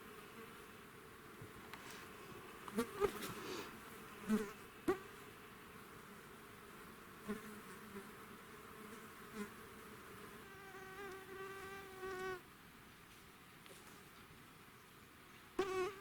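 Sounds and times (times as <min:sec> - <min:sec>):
insects buzzing: 0:15.6 - 0:16.0.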